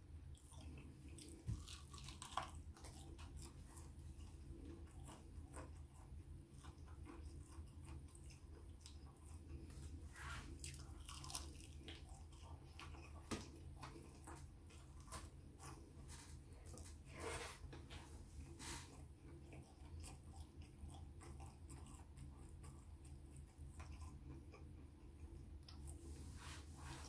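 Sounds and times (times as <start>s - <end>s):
low steady hum: 0.0s - 27.0s
person biting and chewing: 0.4s - 9.7s, 10.5s - 15.9s.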